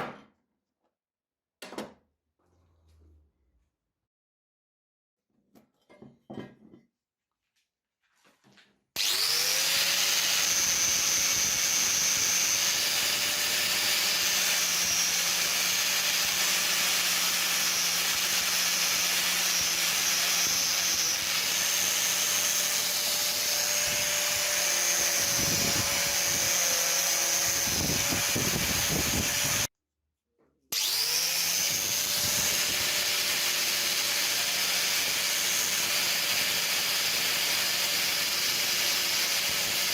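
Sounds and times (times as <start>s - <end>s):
electric power tool motor: 9.0s - 29.7s, 30.7s - 39.9s.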